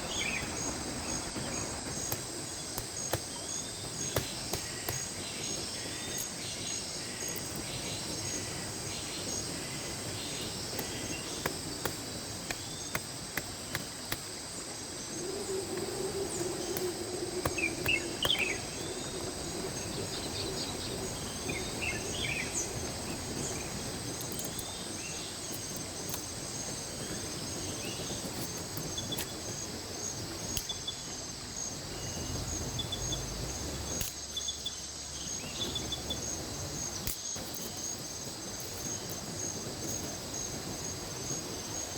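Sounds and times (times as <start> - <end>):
creek rushing: 0.0 - 6.1, 7.8 - 30.5
insects chirping: 0.0 - 41.9
low hum: 15.1 - 23.7
short bird calls: 15.2 - 22.8.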